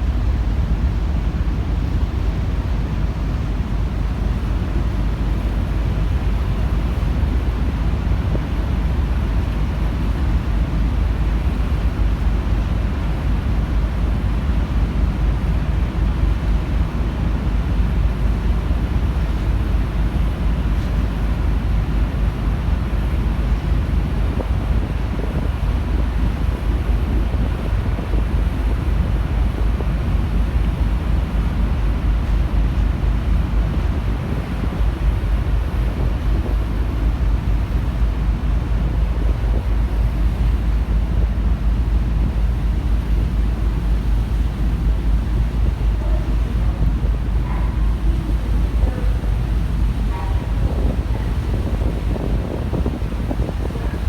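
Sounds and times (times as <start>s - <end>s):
constant low rumble: 0.0s - 54.0s
wind buffeting microphone: 34.0s - 54.0s.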